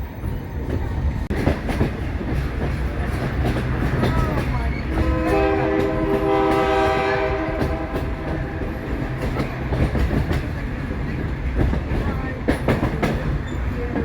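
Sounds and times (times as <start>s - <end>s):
train wheels clicking over rail joints: 0.6s - 14.0s
locomotive air horn blast: 4.9s - 8.7s.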